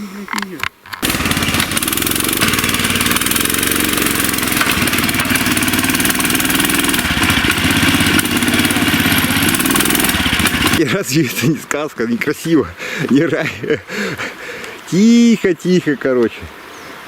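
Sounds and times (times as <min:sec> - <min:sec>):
outboard motor running: 0:01.0 - 0:11.0.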